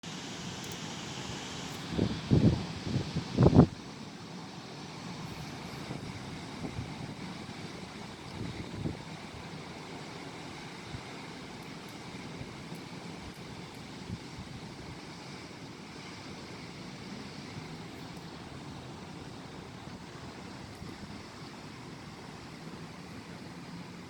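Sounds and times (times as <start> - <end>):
wind buffeting microphone: 1.8 - 3.8, 5.6 - 9.2
strong wind blowing: 1.9 - 3.8, 5.5 - 9.2.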